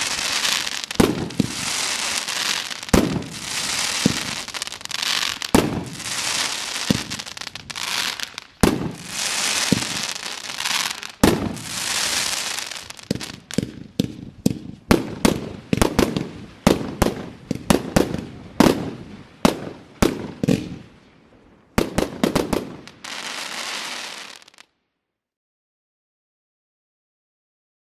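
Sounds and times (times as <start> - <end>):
crackling sizzle: 0.0 - 13.7
sharp firework bangs: 0.0 - 20.8.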